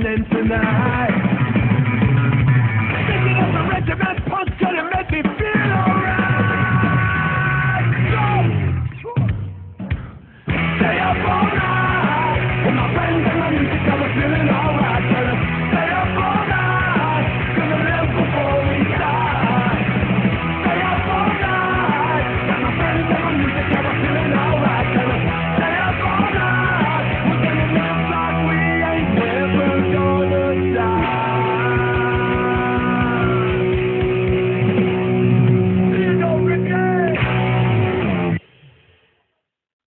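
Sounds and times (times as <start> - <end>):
punk rock band playing: 0.0 - 38.5
shouted singing: 5.4 - 8.5, 10.8 - 33.9.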